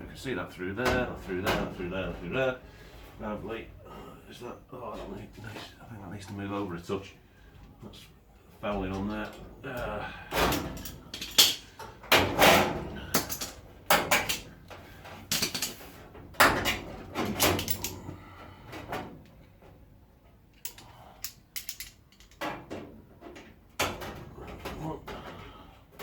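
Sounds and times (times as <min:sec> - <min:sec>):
metal panel knocks and clanks: 0:10.3 - 0:14.5, 0:15.3 - 0:17.9.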